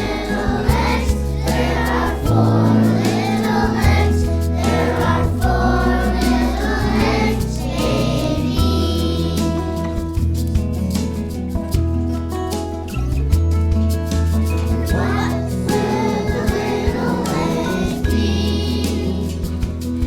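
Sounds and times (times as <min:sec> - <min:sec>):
children singing together: 0:00.0 - 0:10.0, 0:14.7 - 0:20.0
instrumental accompaniment with bass: 0:00.0 - 0:20.0.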